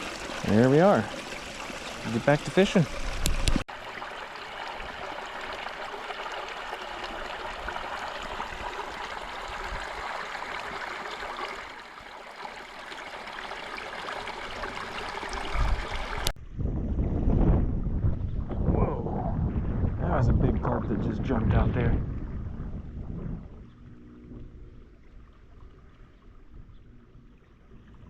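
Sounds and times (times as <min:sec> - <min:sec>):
creek water running: 0:00.0 - 0:16.4, 0:20.5 - 0:28.0.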